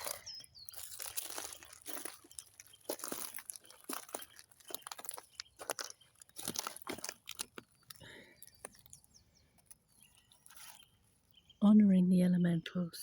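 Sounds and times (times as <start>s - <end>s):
brittle plant material crunching: 0.0s - 11.0s.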